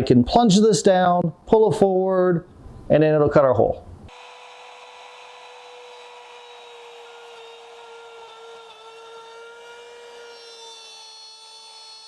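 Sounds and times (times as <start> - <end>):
router high whine cutting wood: 4.1 - 12.0.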